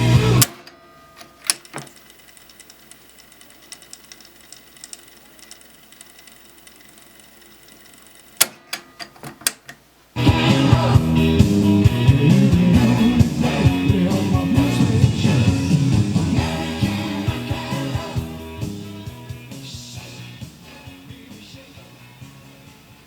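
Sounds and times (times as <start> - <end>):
rock music from tape: 0.0 - 2.0, 10.2 - 23.0
cassette deck mechanical ticking: 0.0 - 9.9
cassette deck sharp clicks: 0.3 - 2.0, 8.4 - 9.8.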